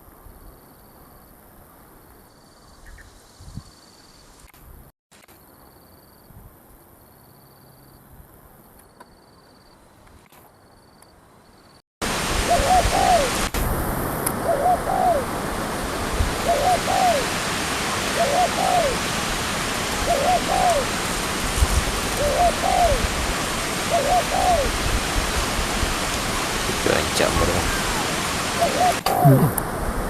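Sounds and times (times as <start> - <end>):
loud steady hiss: 12.0 - 30.0
dove cooing: 12.5 - 13.4, 14.4 - 15.3, 16.4 - 17.4, 18.1 - 19.1, 20.0 - 21.0, 22.1 - 23.2, 23.8 - 24.8, 27.7 - 29.5.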